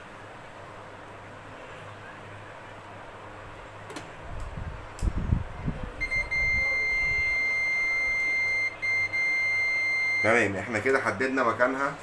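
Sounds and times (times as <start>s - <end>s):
multimeter continuity beep: 6.0s - 10.5s.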